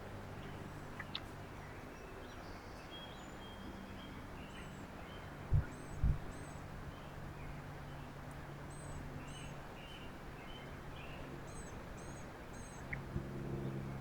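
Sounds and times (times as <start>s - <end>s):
small songbirds calling: 0.0s - 14.0s
steady low hum: 10.6s - 14.0s.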